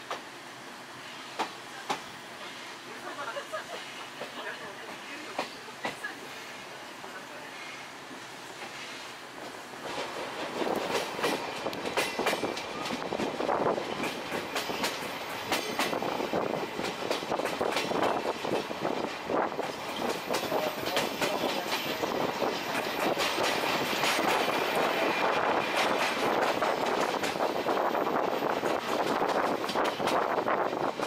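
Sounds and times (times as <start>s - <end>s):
train rumbling: 0.0s - 31.0s
wheels clicking over rail joints: 9.4s - 16.2s.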